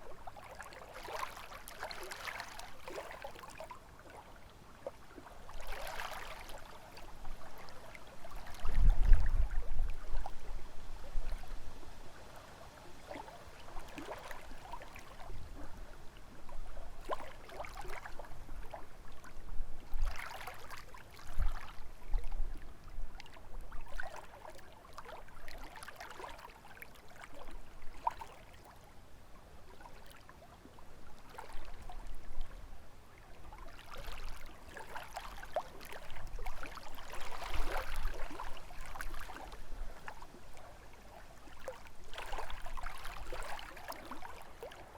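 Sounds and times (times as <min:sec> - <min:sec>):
lake waves lapping on shore: 0:00.0 - 0:28.8, 0:29.6 - 0:44.9
wind rumbling on microphone: 0:08.2 - 0:12.2.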